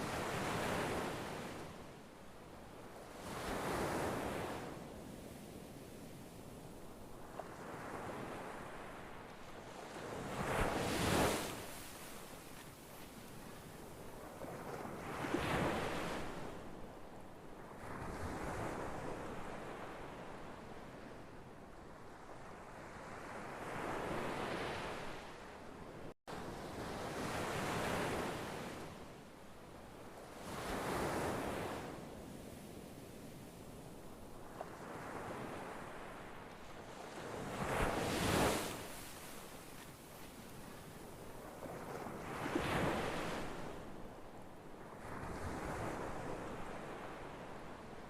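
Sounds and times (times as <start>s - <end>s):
ocean waves breaking: 34.4s - 44.1s.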